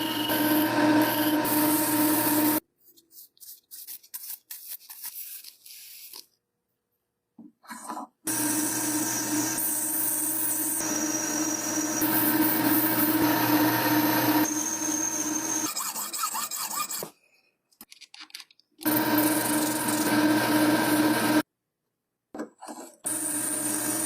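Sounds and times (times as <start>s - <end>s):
power tool motor running: 0.0s - 2.6s, 8.3s - 15.6s, 18.8s - 21.4s, 23.1s - 24.0s.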